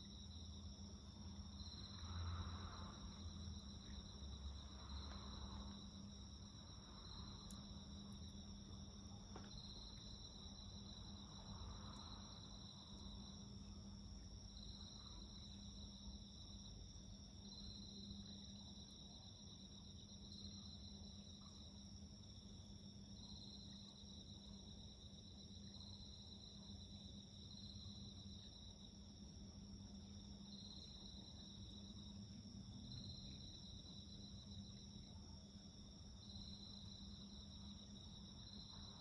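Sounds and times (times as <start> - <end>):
insects trilling: 1.5 - 24.8.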